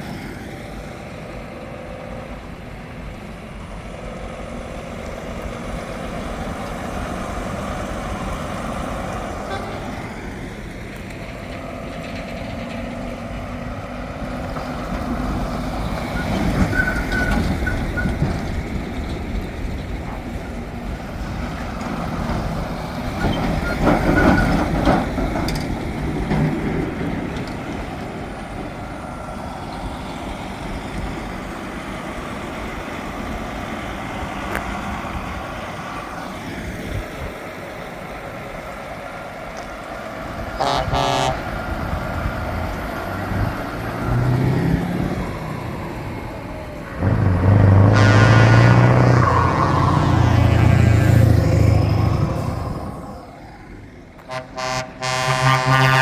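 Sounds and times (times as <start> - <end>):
heavy trucks driving past: 0.0 - 56.0
truck horn blast: 9.4 - 10.2, 40.6 - 41.6, 47.0 - 52.7, 54.2 - 56.0.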